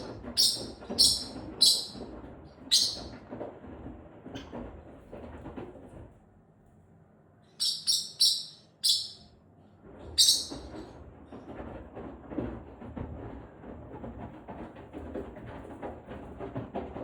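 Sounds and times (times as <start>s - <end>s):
parrotlet chirping: 0.0s - 2.0s, 2.7s - 3.1s, 7.5s - 9.3s, 10.2s - 10.7s.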